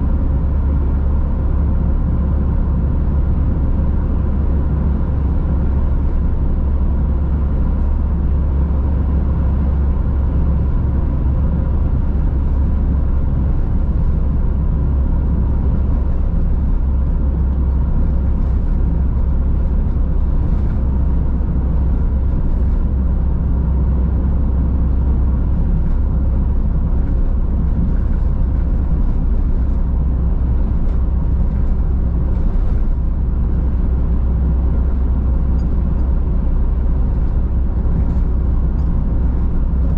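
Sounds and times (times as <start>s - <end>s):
road and tyre rumble: 0.0s - 39.9s.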